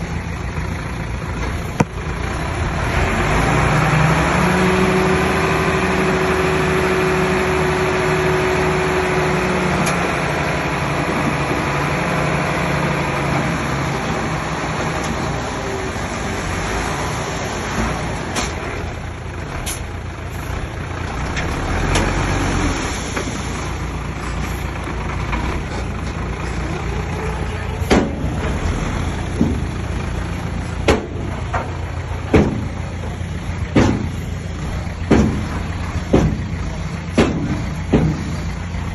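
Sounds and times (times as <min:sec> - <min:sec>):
bulldozer diesel engine: 0:00.0 - 0:38.9
sharp knocks: 0:32.3 - 0:32.8, 0:33.7 - 0:34.2, 0:35.1 - 0:36.5, 0:37.1 - 0:38.4.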